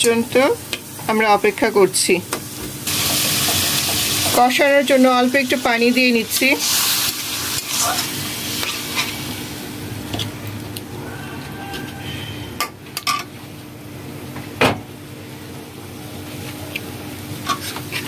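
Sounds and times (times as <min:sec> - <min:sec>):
spices sizzling in a wok: 0:00.0 - 0:10.0
spatula scraping a pan: 0:17.4 - 0:18.0.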